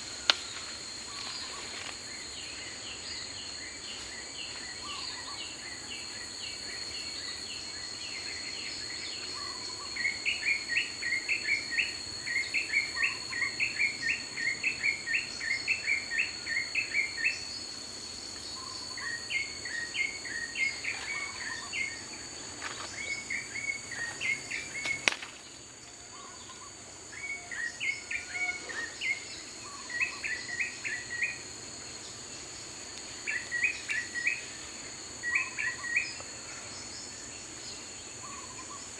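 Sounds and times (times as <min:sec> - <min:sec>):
high-pitched insect drone: 0:00.0 - 0:38.9
bird chirping: 0:22.8 - 0:31.5, 0:33.1 - 0:38.9
sharp click: 0:24.8 - 0:25.4.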